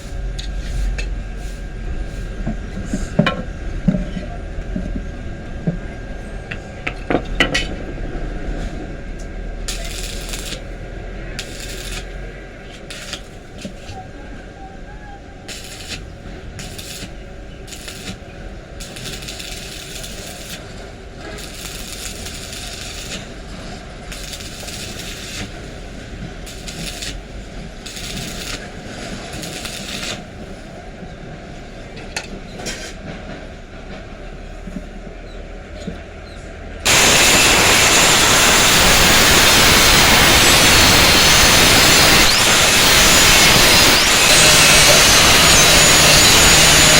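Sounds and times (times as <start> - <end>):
power tool running: 9.7 - 10.7, 15.5 - 18.2, 27.8 - 30.3, 36.9 - 46.9.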